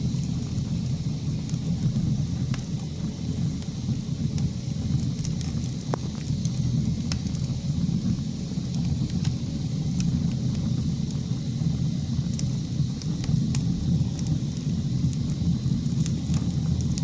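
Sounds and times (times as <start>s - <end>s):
fire crackling and popping: 0.0s - 17.0s
wood fire burning: 0.0s - 17.0s.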